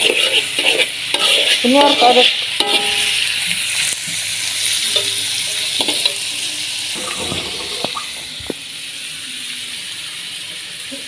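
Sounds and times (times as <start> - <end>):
steady hissing noise: 6.4 - 11.0.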